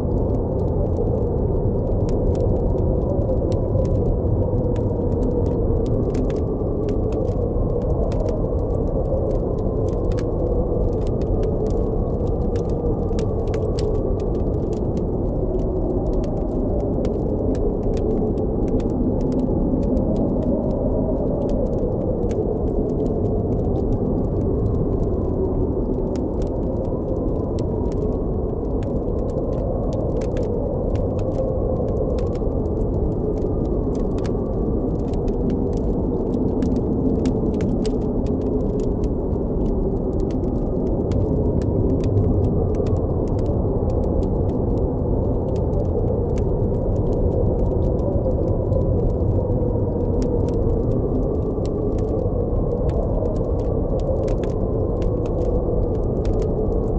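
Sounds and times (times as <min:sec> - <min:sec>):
campfire crackling: 0:00.0 - 0:56.9
howling blizzard wind: 0:00.0 - 0:56.9.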